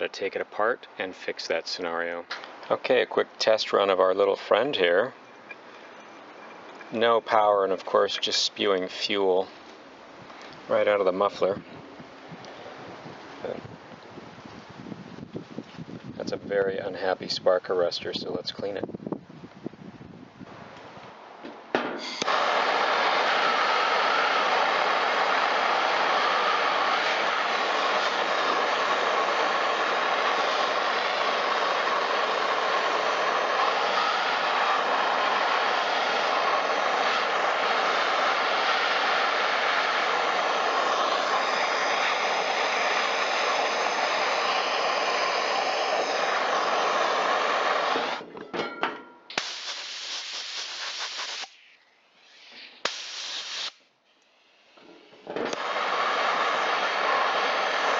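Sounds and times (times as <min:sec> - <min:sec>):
blowtorch flame burning: 0:22.0 - 0:48.2, 0:49.3 - 0:51.6, 0:52.2 - 0:53.8, 0:55.5 - 0:57.9
short hisses: 0:49.4 - 0:53.8.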